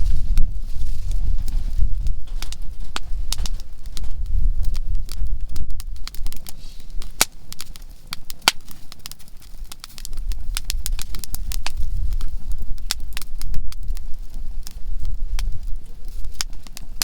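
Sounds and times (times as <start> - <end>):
campfire crackling and popping: 0.0 - 17.0
steady low rumble: 0.0 - 17.0.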